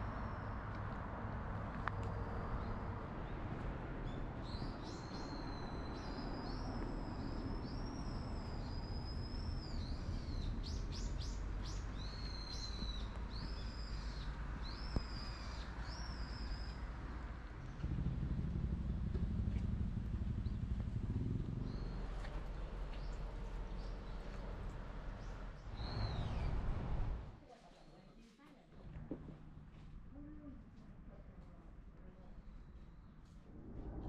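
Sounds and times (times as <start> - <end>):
low rumble: 17.4 - 27.4, 33.3 - 34.0.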